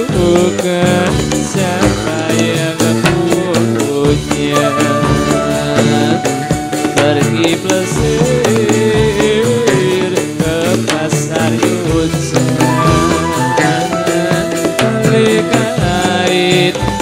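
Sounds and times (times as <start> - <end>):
drums beating a steady rhythm: 0.0 - 17.0
wavering melody line: 4.5 - 7.4, 12.7 - 15.3.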